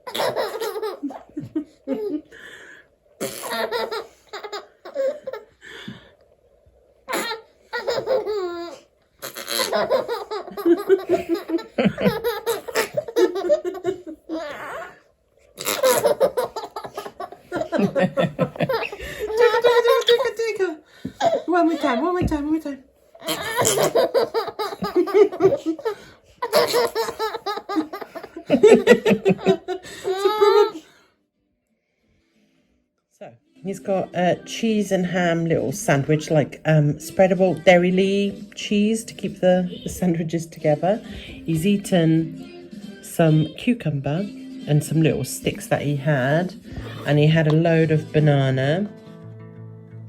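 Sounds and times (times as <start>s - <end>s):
baby laughing: 0.0s - 2.3s, 3.2s - 5.6s, 7.1s - 15.0s, 15.6s - 20.4s, 23.2s - 30.8s.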